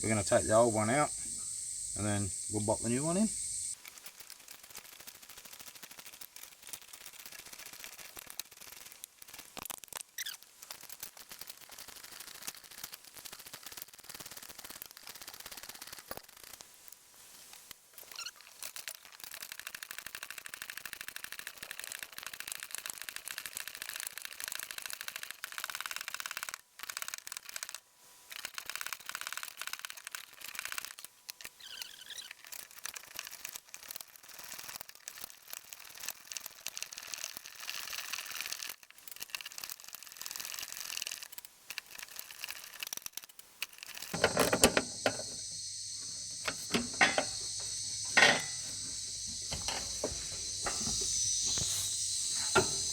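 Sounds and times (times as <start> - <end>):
ratchet wrench clicking: 32.6 - 52.9
metal knocks: 44.2 - 45.5, 46.1 - 51.0.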